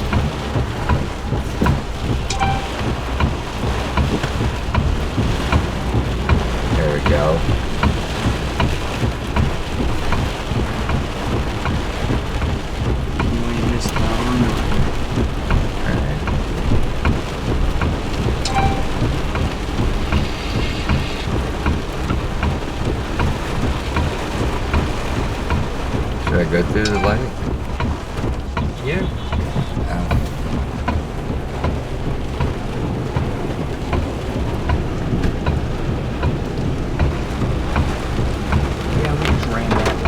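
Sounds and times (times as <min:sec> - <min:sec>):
heavy rain on a car: 0:00.0 - 0:40.0
low steady rumble: 0:00.0 - 0:40.0
brief high tone: 0:02.3 - 0:02.9, 0:18.5 - 0:19.1, 0:26.9 - 0:27.4.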